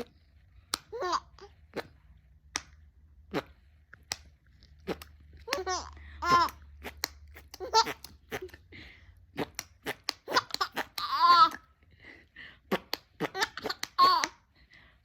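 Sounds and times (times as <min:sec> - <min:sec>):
baby giggling: 0:00.9 - 0:01.5, 0:05.5 - 0:08.6, 0:09.4 - 0:11.7, 0:12.8 - 0:14.4.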